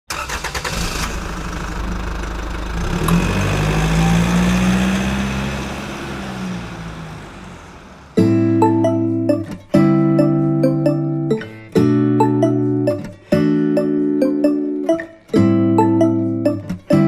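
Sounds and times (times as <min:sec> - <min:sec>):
van engine running: 0:01.0 - 0:08.2.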